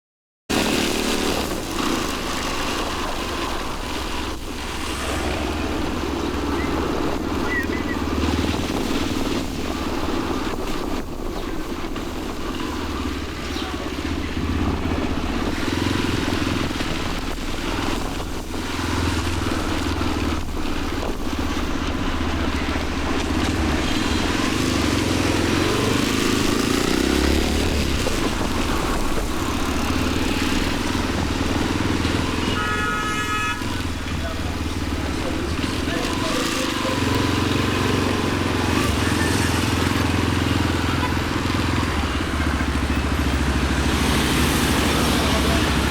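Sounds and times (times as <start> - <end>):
motorcycle engine running: 0.5 - 45.9.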